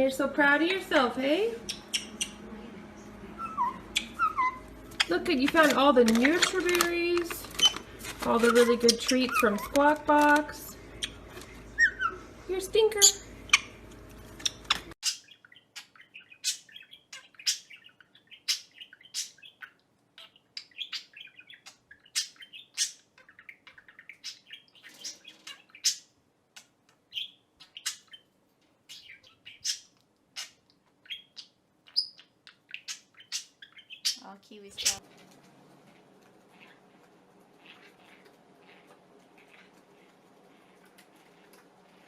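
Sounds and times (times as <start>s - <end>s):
low background hum: 0.0s - 42.0s
small bird chirping: 1.6s - 2.5s, 3.4s - 5.2s, 14.4s - 35.0s, 36.4s - 42.0s.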